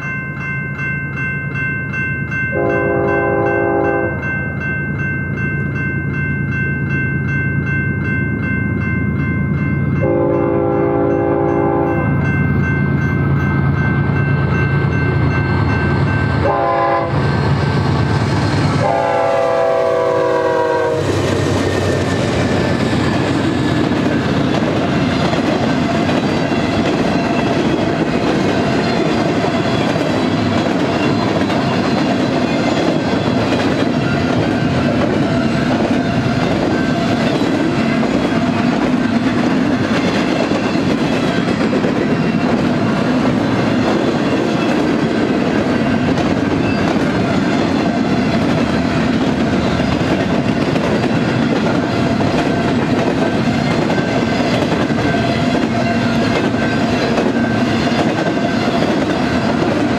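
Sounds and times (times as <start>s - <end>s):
crossing bell dinging: 0.0s - 59.9s
diesel locomotive engine drone: 0.0s - 59.9s
locomotive horn blasts: 2.5s - 4.2s, 10.0s - 12.1s, 16.4s - 17.3s, 18.8s - 21.1s
train wheels clickety-clack: 12.8s - 59.9s.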